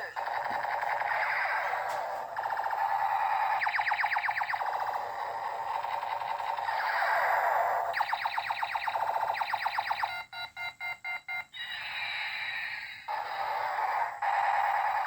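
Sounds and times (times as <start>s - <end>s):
falling laser-like sweeps: 0.0s - 10.1s
chopped electronic beeps: 2.4s - 7.3s, 7.9s - 11.7s
fast electronic chirps: 2.4s - 15.0s.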